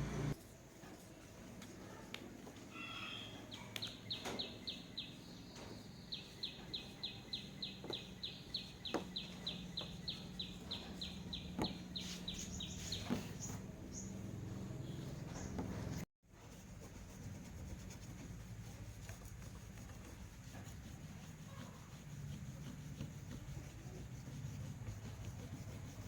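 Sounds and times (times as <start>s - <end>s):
bird chirping: 2.8s - 16.0s.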